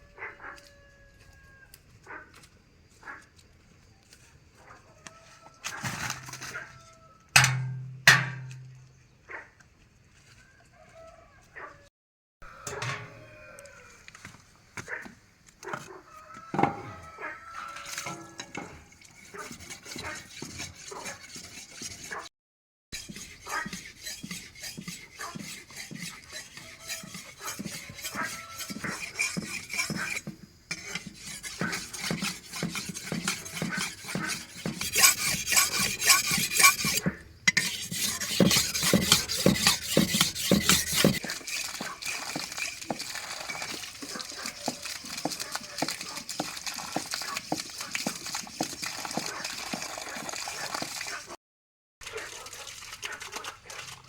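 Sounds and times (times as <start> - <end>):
utensils scraping a pot: 5.6 - 6.7, 7.4 - 8.8, 12.4 - 13.5, 16.5 - 22.3, 23.0 - 51.3.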